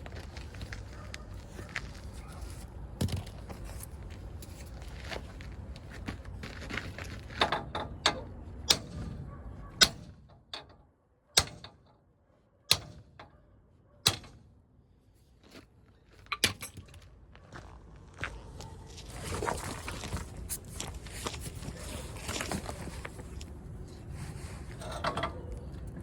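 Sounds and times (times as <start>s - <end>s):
soft handling noise: 18.6s - 26.0s.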